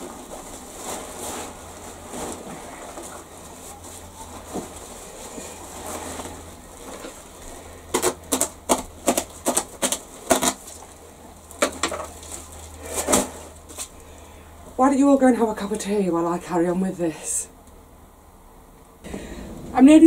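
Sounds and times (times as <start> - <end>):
plastic bags crackling: 0.0 - 14.1
dry leaves crackling: 0.0 - 14.2.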